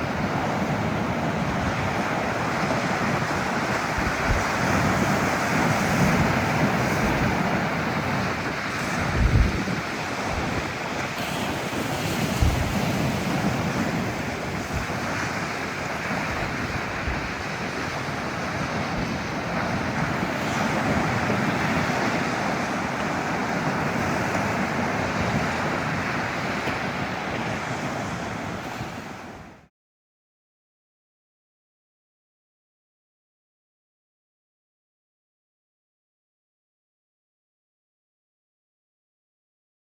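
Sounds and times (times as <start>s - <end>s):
wind buffeting the microphone: 0.0s - 29.6s
surf breaking on a beach: 0.0s - 29.7s.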